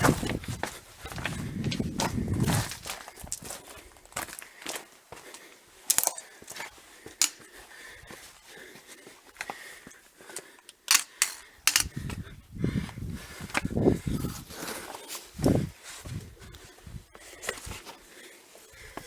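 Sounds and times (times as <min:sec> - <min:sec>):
stones clicking underfoot: 0:00.0 - 0:03.6, 0:04.2 - 0:07.5
footsteps on gravel: 0:00.0 - 0:07.4.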